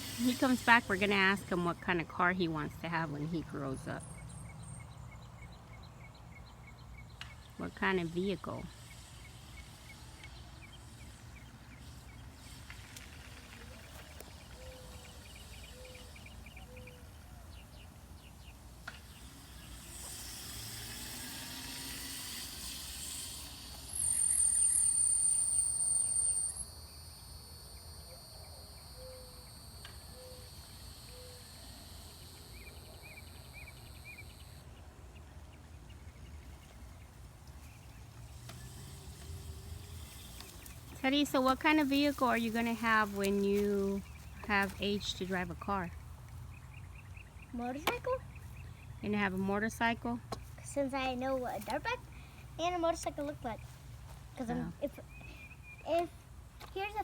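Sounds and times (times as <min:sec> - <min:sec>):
birds chirping: 0:00.0 - 0:26.6, 0:28.8 - 0:57.0
loud high-pitched whine: 0:19.1 - 0:34.6.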